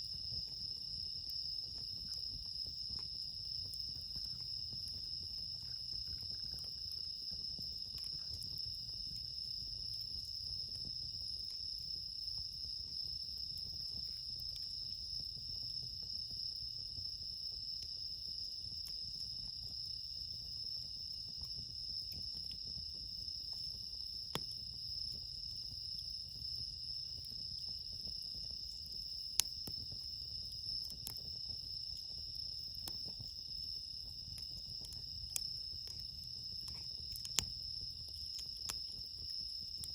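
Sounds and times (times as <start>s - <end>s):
crickets chirping: 0.0s - 39.9s
campfire popping: 0.1s - 39.9s.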